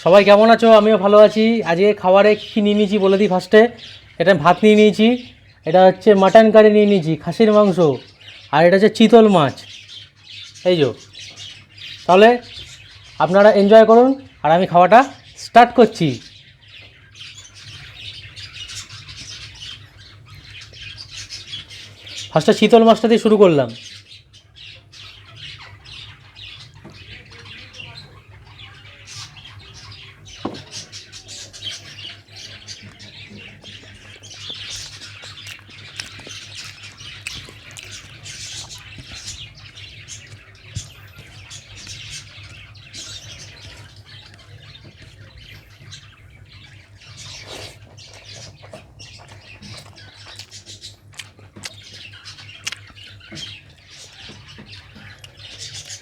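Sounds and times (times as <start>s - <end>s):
chewing and lip-smacking: 34.4s - 40.5s, 47.4s - 53.1s.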